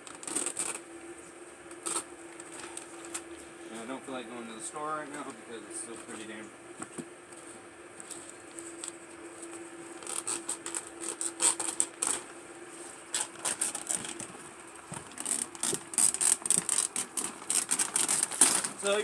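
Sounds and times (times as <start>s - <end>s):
plastic sheet crinkling and tearing: 0.0s - 0.8s, 1.7s - 3.2s, 8.0s - 12.3s, 13.1s - 19.0s.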